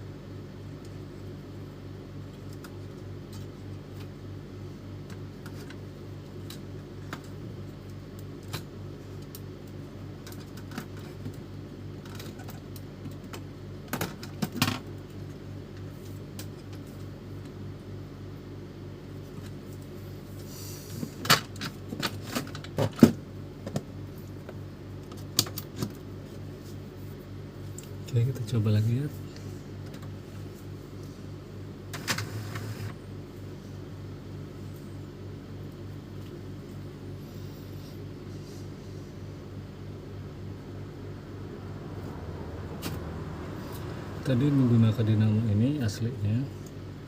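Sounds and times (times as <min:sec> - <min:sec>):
low hum: 0:26.0 - 0:47.0.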